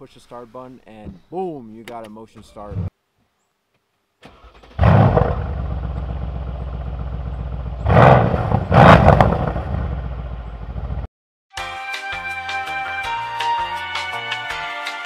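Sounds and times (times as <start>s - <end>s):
car engine starting and idling: 4.2s - 11.1s
engine revving: 4.6s - 11.1s.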